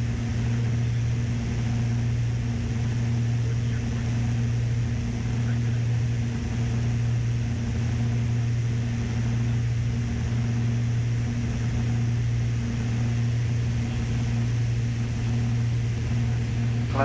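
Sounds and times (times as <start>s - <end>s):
twin piston engines droning: 0.0s - 17.0s.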